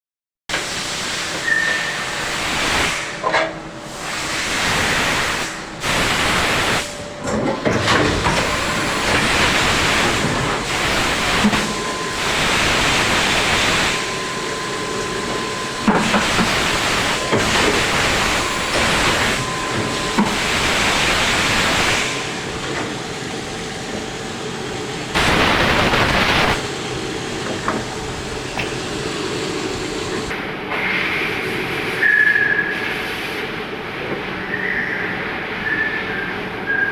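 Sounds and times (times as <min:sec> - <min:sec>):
machining centre hiss: 0:03.8 - 0:07.2, 0:07.9 - 0:23.2, 0:24.1 - 0:30.4.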